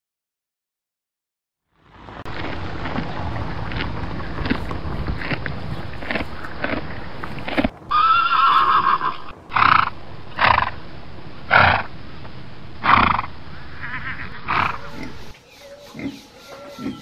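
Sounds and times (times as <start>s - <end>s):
horse whinnying: 7.9s - 10.7s, 12.8s - 15.2s.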